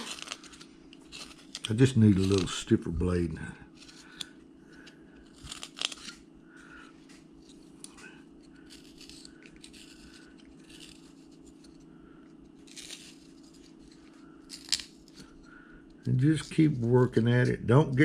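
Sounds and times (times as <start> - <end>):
knife scraping wood: 0.0 - 2.5, 8.4 - 11.9, 12.6 - 15.3
steady low hum: 0.0 - 18.0.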